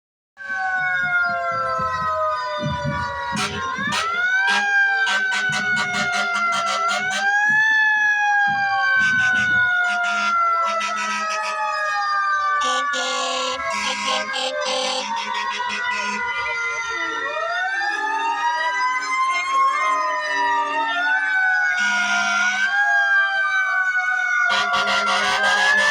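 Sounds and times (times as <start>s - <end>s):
fire truck sirens wailing: 0.4s - 25.9s.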